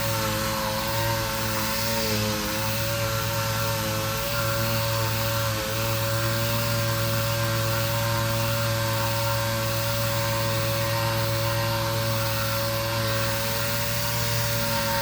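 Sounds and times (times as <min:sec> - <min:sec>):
sander running on wood: 0:00.0 - 0:15.0.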